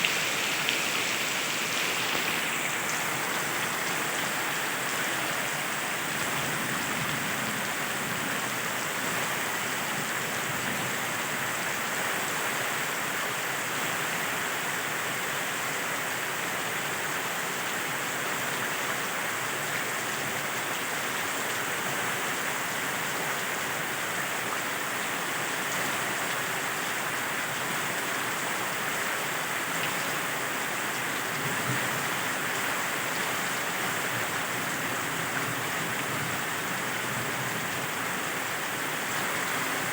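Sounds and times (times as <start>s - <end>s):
heavy rain falling: 0.0s - 12.8s, 21.7s - 39.9s.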